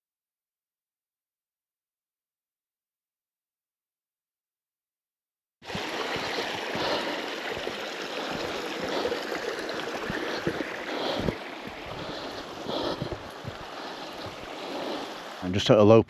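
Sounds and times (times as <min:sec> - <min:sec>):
stream running: 0:05.6 - 0:16.0.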